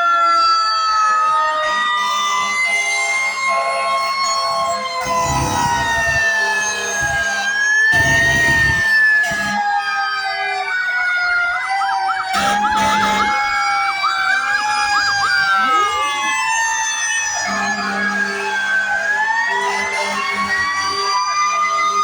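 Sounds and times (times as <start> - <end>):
fire truck sirens wailing: 0.0 - 22.0
deep horn blasts: 12.4 - 13.6.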